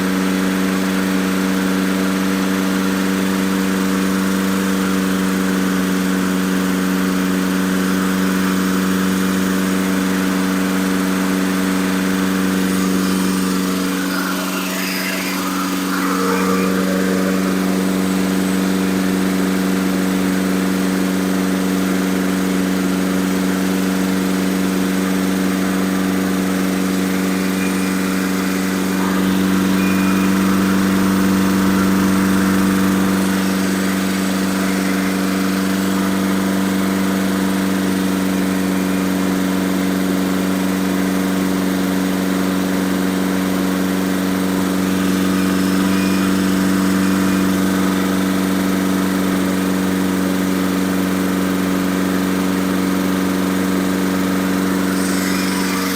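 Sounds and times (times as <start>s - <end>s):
engine running hum: 0.0s - 55.9s.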